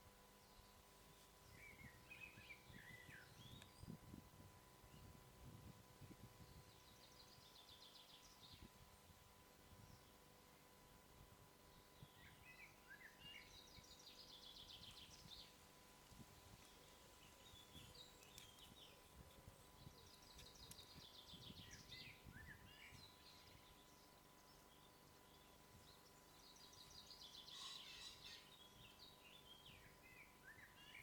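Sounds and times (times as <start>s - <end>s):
birds trilling and chirping: 19.6s - 30.8s.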